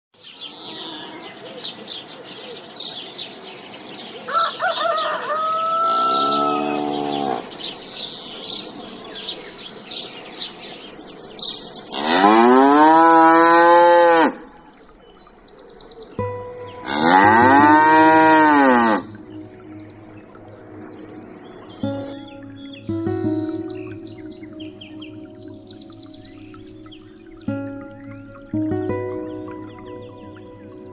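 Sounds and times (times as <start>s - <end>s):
birds chirping: 0.2s - 30.9s
animal calls rising and falling: 4.3s - 7.5s.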